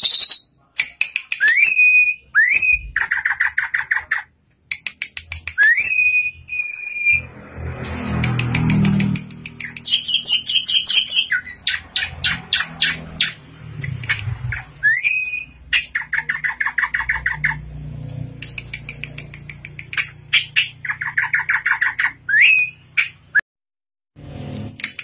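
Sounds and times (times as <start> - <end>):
bird singing varied song: 9.5 - 17.6, 18.4 - 23.4.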